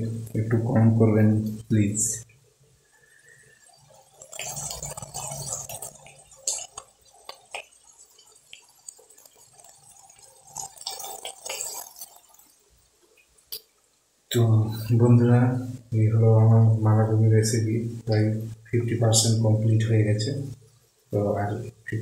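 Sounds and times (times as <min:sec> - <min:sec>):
curry sizzling in a pan: 0:03.0 - 0:13.6.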